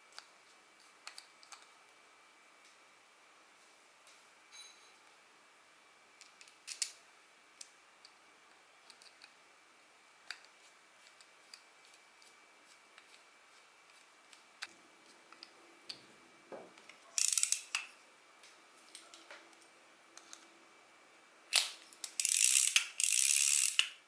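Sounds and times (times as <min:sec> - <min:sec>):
small metal parts clicking: 0:17.1 - 0:17.9, 0:21.5 - 0:24.0.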